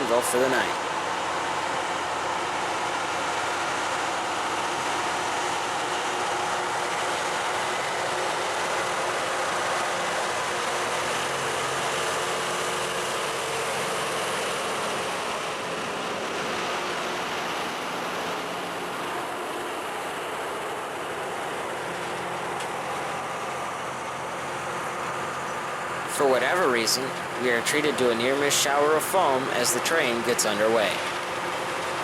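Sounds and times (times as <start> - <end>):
diesel power units droning: 0.0 - 32.0.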